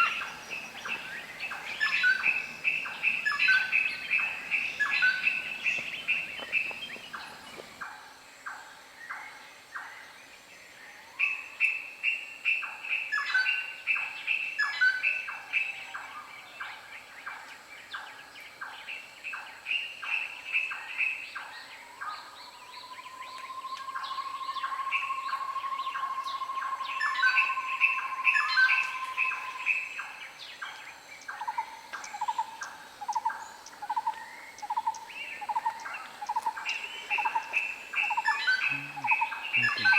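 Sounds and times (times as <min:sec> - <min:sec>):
birds chirping: 0:00.0 - 0:07.8, 0:31.2 - 0:39.9
run of low bird notes: 0:00.0 - 0:07.8.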